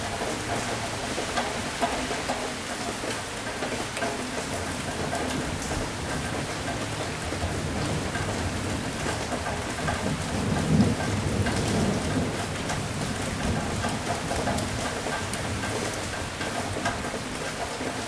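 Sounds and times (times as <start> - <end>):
heavy rain: 0.0 - 18.0
low thunder rumble: 7.4 - 14.8.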